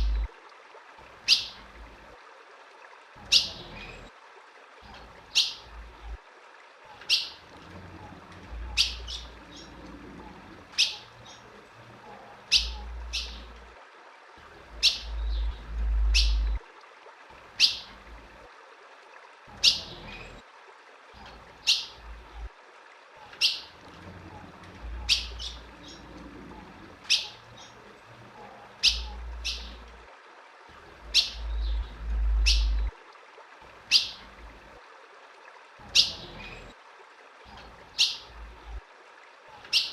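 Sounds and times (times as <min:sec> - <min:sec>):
low rumbles: 0:00.0 - 0:00.3, 0:14.6 - 0:16.6, 0:30.8 - 0:33.0
bird chip calls: 0:05.3 - 0:05.7, 0:10.8 - 0:11.4, 0:12.5 - 0:13.6, 0:14.8 - 0:16.6, 0:17.6 - 0:17.9, 0:25.0 - 0:26.1, 0:27.1 - 0:27.8, 0:28.8 - 0:29.8, 0:31.1 - 0:32.9, 0:33.9 - 0:34.2.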